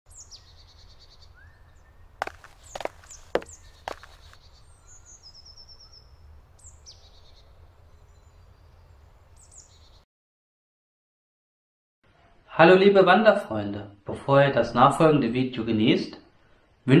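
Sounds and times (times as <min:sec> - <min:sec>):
songbirds chirping: 0:00.1 - 0:10.0.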